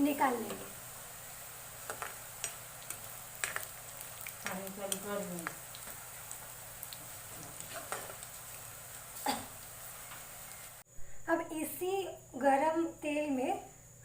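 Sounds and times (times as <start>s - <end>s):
batter sizzling in hot oil: 0.0s - 10.9s
utensil clicking against pan: 1.8s - 6.0s.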